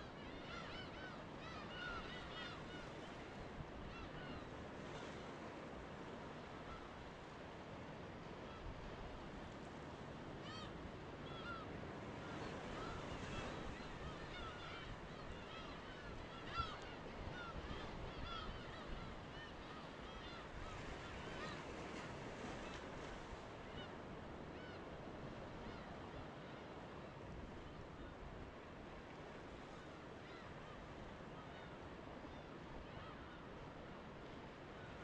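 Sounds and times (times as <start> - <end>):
surf washing: 0.0 - 35.0.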